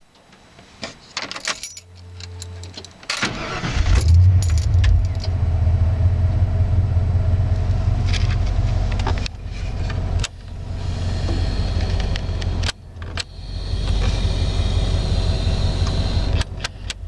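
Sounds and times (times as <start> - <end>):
low electrical hum: 0.0 - 17.0
keys jingling: 1.2 - 3.2, 3.9 - 5.3
engine cranking and idling: 3.2 - 17.0.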